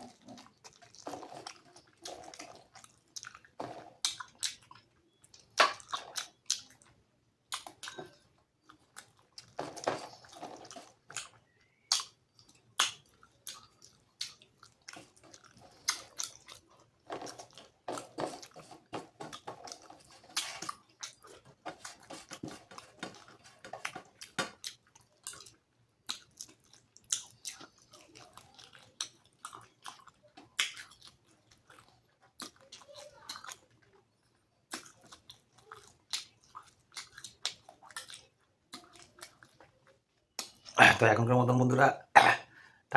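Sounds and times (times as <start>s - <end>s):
wet chewing mouth smacks: 10.5s - 16.6s.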